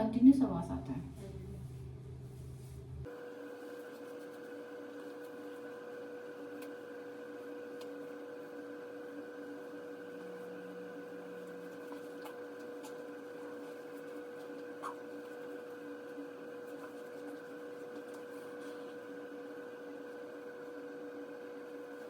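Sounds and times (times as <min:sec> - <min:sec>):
ventilator humming: 0:00.0 - 0:22.0.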